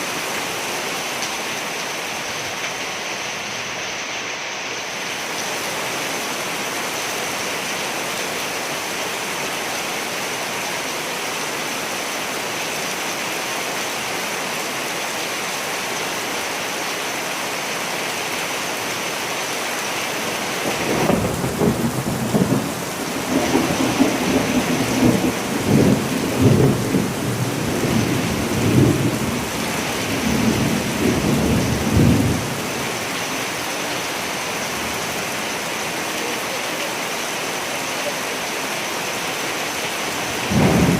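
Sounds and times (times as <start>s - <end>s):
heavy rain hissing: 0.0s - 40.9s
rolling thunder rumble: 20.7s - 32.6s, 40.4s - 40.9s.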